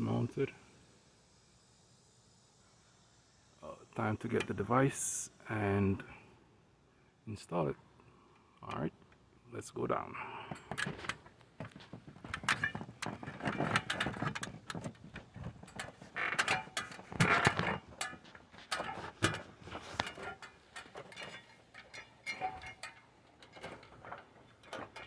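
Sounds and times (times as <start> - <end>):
ladder creaking and clanking: 10.5 - 25.0.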